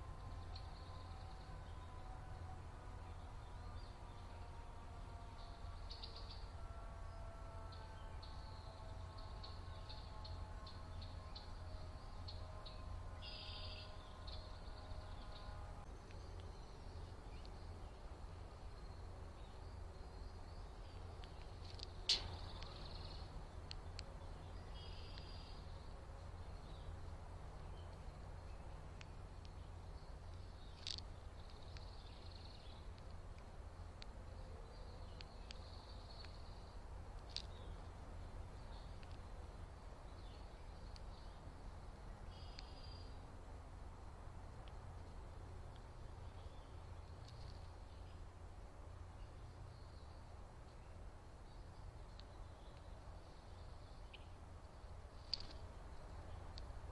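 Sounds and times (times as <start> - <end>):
songbirds chirping: 0.0 - 56.9
steady low hum: 0.0 - 56.9
sharp clicks: 21.2 - 24.1.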